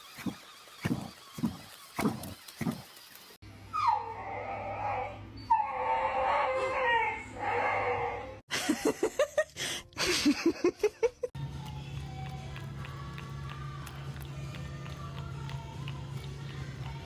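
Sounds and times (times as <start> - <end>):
dog howling: 3.8 - 8.4.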